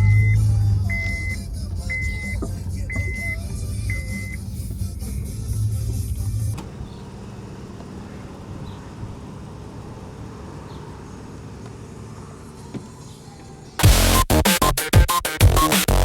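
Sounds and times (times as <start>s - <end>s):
car engine and road noise: 0.0s - 16.0s
loud music: 13.8s - 16.0s.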